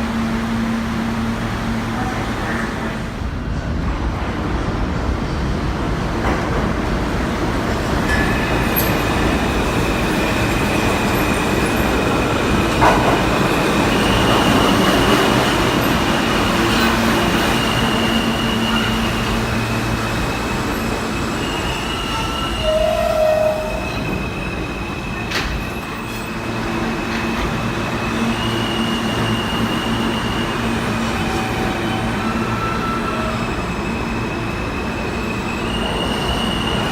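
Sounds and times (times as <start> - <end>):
subway train rumbling: 0.0 - 36.9
wheels squealing: 8.1 - 36.9.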